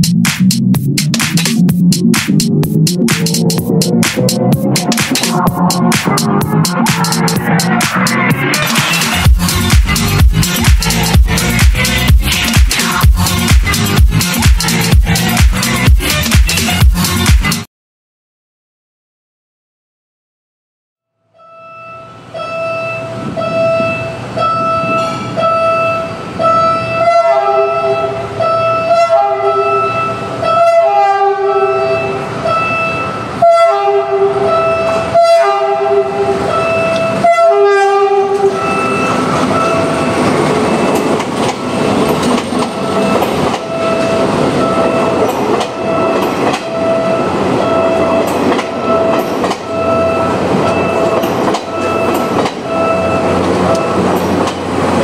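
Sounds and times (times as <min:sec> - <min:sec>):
train wheel and rail noise: 0:00.0 - 0:17.6, 0:21.5 - 0:55.0
train horn blasts: 0:21.4 - 0:41.0, 0:42.8 - 0:54.1.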